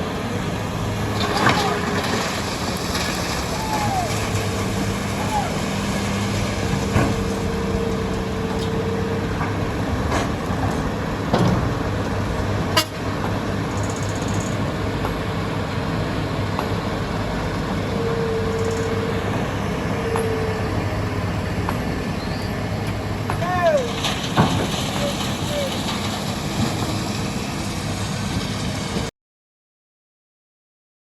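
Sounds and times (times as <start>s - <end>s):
heavy diesel machinery running: 0.0s - 29.1s
faint high tone: 3.5s - 5.9s.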